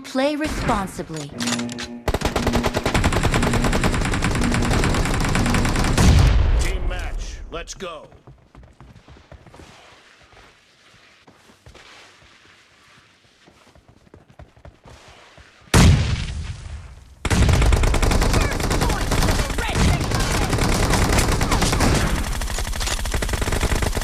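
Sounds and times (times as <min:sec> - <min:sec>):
rapid automatic gunfire: 0:02.1 - 0:06.3, 0:17.2 - 0:24.0.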